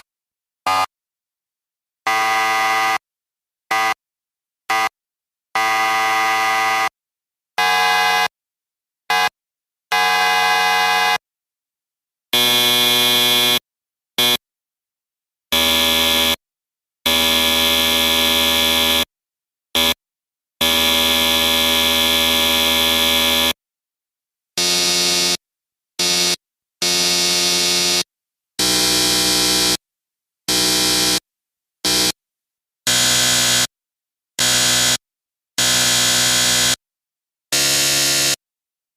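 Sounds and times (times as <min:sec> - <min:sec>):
harsh buzzer buzzes: 0:00.6 - 0:01.0, 0:02.1 - 0:03.1, 0:03.7 - 0:04.0, 0:04.7 - 0:05.0, 0:05.6 - 0:07.0, 0:07.6 - 0:08.4, 0:09.1 - 0:11.3, 0:12.3 - 0:14.4, 0:15.5 - 0:16.4, 0:17.0 - 0:19.1, 0:19.8 - 0:20.0, 0:20.6 - 0:23.6, 0:24.6 - 0:25.4, 0:26.0 - 0:29.8, 0:30.5 - 0:32.2, 0:32.9 - 0:33.8, 0:34.4 - 0:36.8, 0:37.5 - 0:38.4.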